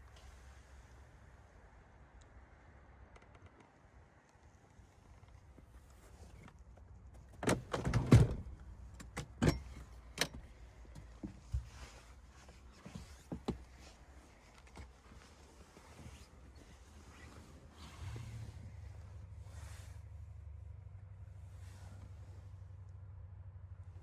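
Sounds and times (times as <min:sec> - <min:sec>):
faint low rumble: 0:10.5 - 0:24.0.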